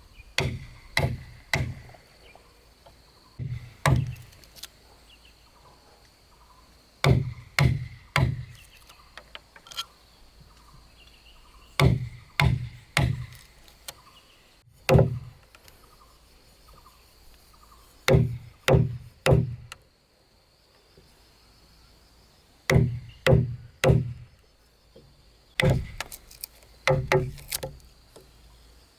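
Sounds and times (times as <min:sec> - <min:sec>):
heavy blows striking wood: 0:00.4 - 0:02.0, 0:03.4 - 0:04.3, 0:07.0 - 0:08.6, 0:11.8 - 0:13.4, 0:14.8 - 0:15.4, 0:18.1 - 0:19.8, 0:22.7 - 0:24.3, 0:25.6 - 0:26.2, 0:26.8 - 0:27.8.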